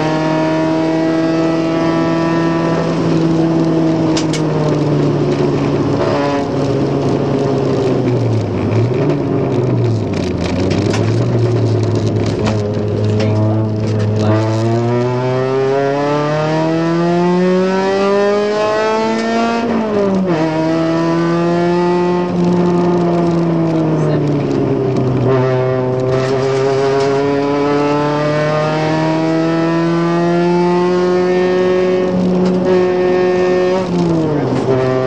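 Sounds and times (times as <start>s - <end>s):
car engine revving from inside: 9.9s - 24.3s, 25.0s - 35.0s.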